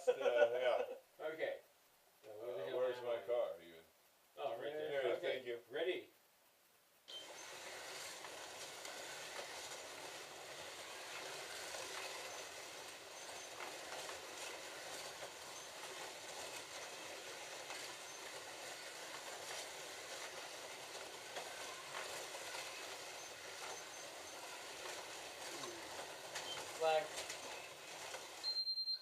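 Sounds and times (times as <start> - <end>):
slot car motors whirring: 7.1 - 28.6
cars clicking along track: 7.2 - 28.5.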